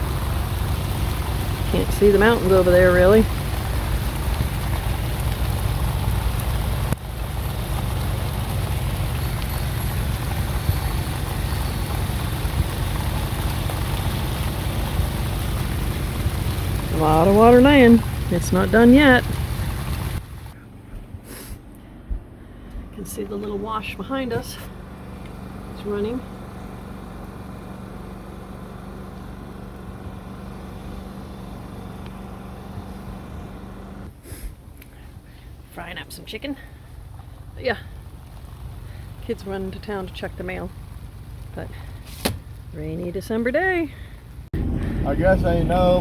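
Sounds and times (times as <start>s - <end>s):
constant rushing noise: 0.0s - 26.2s, 44.3s - 46.0s
engine humming steadily: 0.0s - 46.0s
wind buffeting microphone: 44.6s - 46.0s.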